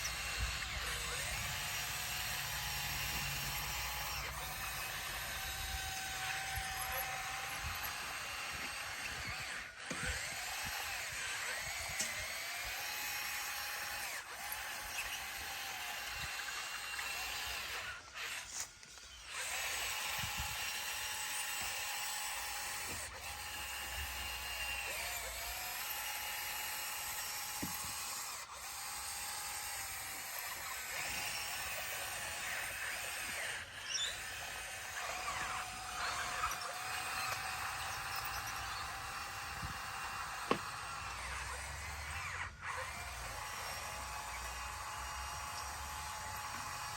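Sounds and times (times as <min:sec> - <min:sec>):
bulldozer engine whining: 0:27.6 - 0:46.9.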